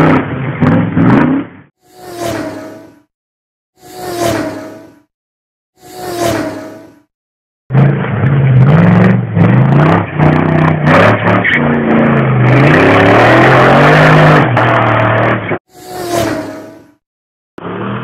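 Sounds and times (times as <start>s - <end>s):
buggy engine revving: 0.0s - 1.6s, 7.7s - 15.6s.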